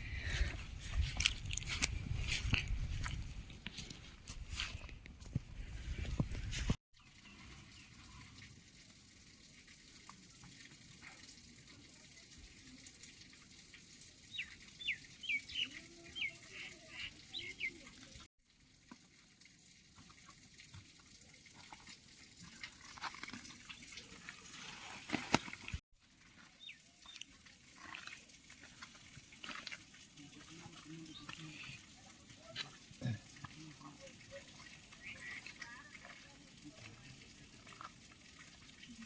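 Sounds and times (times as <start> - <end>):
faint water noise: 0.0 - 39.0
short chirping calls: 14.3 - 17.8.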